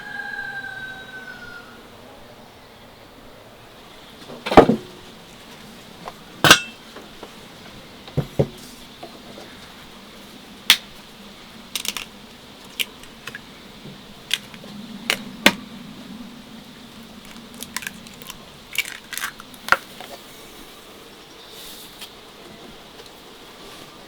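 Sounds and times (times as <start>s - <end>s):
kitchenware clinking: 6.4s - 6.8s.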